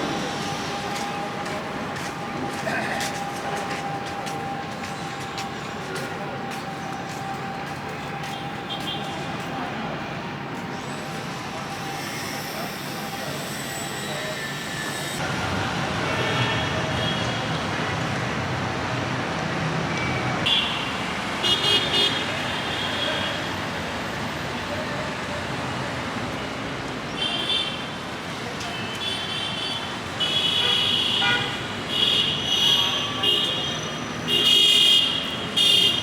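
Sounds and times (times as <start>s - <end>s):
street traffic: 0.0s - 36.0s
vehicle horn toots: 30.2s - 36.0s.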